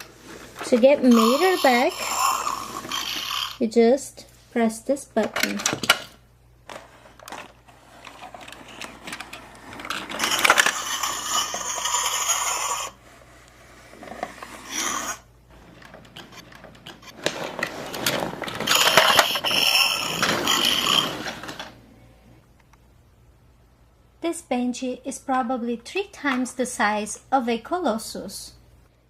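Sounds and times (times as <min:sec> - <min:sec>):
toy mechanism rattling and clicking: 0:00.6 - 0:03.6, 0:06.7 - 0:13.0, 0:14.0 - 0:21.7.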